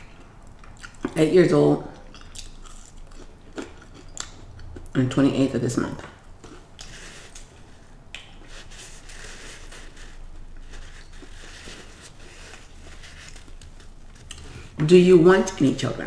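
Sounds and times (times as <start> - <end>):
person chewing crunchy food: 0.0 - 1.2, 2.0 - 5.0, 6.3 - 14.8.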